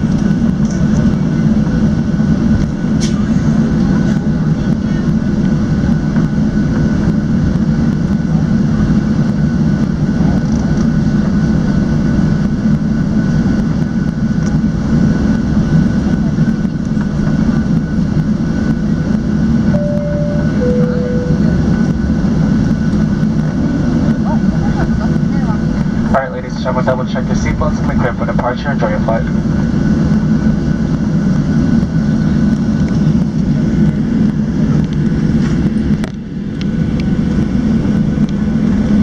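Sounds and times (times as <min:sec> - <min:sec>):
airplane cabin low rumble: 0:00.0 - 0:39.0
two-tone cabin chime: 0:19.8 - 0:21.9.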